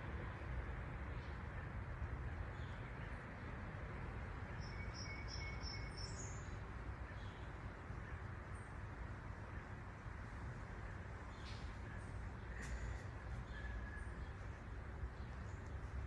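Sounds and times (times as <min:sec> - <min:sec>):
bird chirping: 0:04.5 - 0:07.5.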